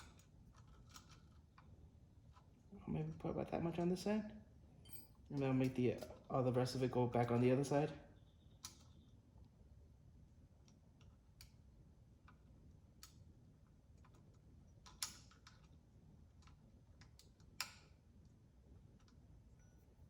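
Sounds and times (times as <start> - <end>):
small parts clicking and tapping: 0.0 - 2.5, 10.6 - 19.3.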